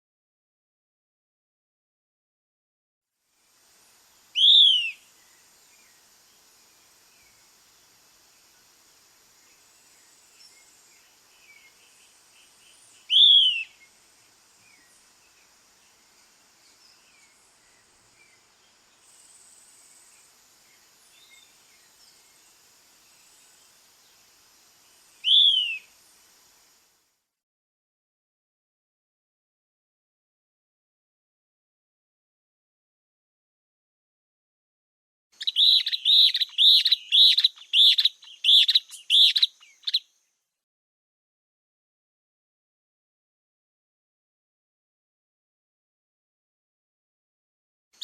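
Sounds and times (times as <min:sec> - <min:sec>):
soft background hiss: 0:03.2 - 0:27.4, 0:35.4 - 0:40.6
faint birds chirping and whistling: 0:04.2 - 0:08.6, 0:09.4 - 0:26.2, 0:35.4 - 0:40.4
bird calling clear notes: 0:04.3 - 0:05.1, 0:13.0 - 0:13.8, 0:25.2 - 0:25.9, 0:35.4 - 0:40.1.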